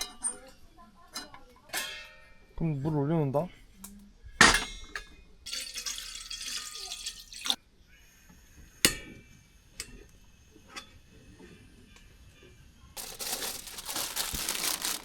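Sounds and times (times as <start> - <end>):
water pouring into a pot: 5.5 - 7.6.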